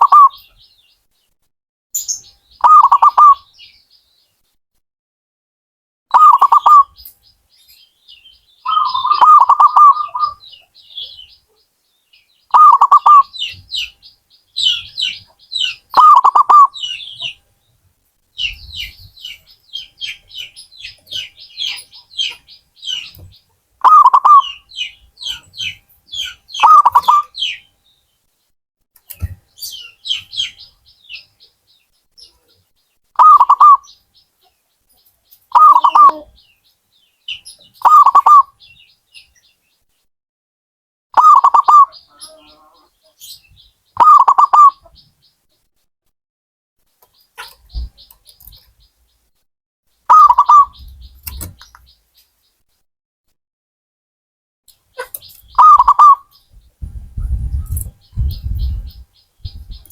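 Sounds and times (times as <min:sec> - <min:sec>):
dove cooing: 0:00.0 - 0:00.4, 0:02.6 - 0:03.4, 0:08.7 - 0:10.4, 0:12.5 - 0:13.5, 0:15.6 - 0:16.9, 0:23.8 - 0:25.7, 0:26.6 - 0:27.5, 0:33.2 - 0:33.8, 0:35.5 - 0:36.4, 0:41.2 - 0:42.9, 0:44.0 - 0:44.9, 0:50.1 - 0:51.1, 0:55.0 - 0:59.9
small birds chirping: 0:00.0 - 0:01.4, 0:02.0 - 0:04.5, 0:06.1 - 0:40.1, 0:41.2 - 0:45.7, 0:46.9 - 0:52.6, 0:54.7 - 0:59.9.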